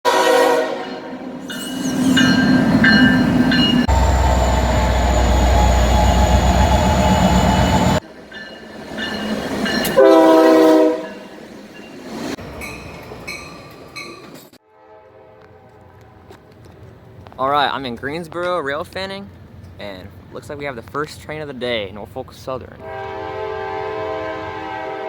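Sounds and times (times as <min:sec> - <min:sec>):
locomotive horn: 0:00.0 - 0:01.2, 0:09.9 - 0:11.2, 0:14.7 - 0:16.4, 0:22.8 - 0:25.0
passing train rumble and rail noise: 0:00.1 - 0:25.0.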